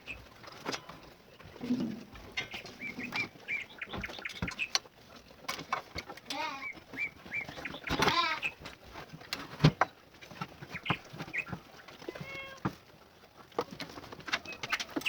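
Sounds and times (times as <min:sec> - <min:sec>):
birds chirping: 0:00.0 - 0:04.9, 0:05.6 - 0:08.7, 0:10.6 - 0:12.7.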